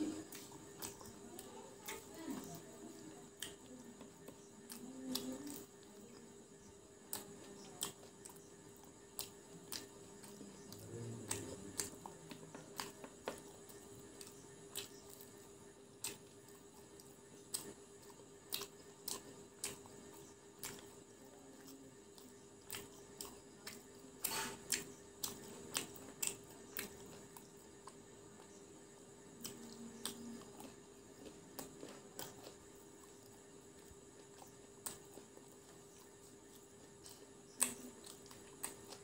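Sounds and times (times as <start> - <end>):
chewing crispy food: 0.0 - 39.0
faint steady hum: 0.0 - 39.0.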